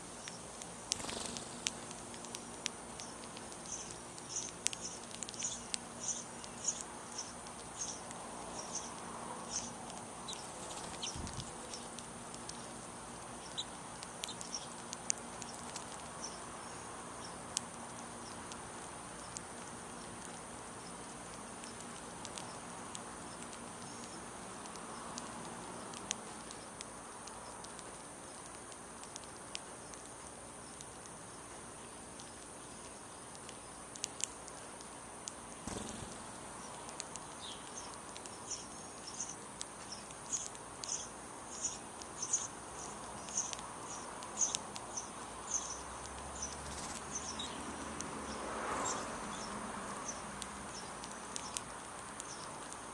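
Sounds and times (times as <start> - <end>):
small birds chirping: 0.0 - 52.9
sharp ticks: 0.2 - 12.8, 13.4 - 16.4, 32.2 - 52.9
high insect drone: 35.0 - 52.6.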